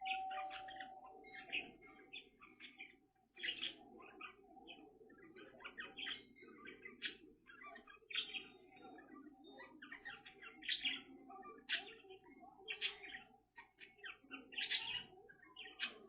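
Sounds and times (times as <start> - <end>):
parakeet chirping: 0.0 - 16.0.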